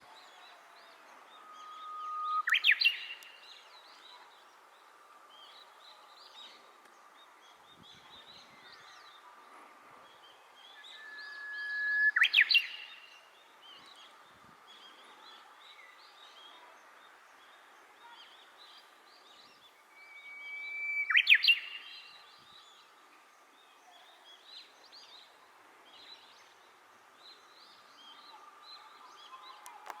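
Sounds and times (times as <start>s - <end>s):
bird singing whistled song: 1.3s - 3.6s, 10.6s - 13.2s, 19.7s - 22.8s.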